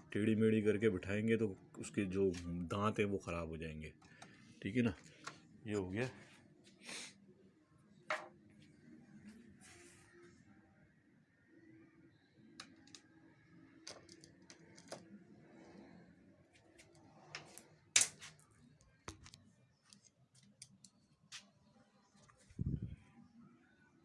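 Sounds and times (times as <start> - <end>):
plastic and metal parts clicking: 12.6 - 13.1, 13.8 - 15.1.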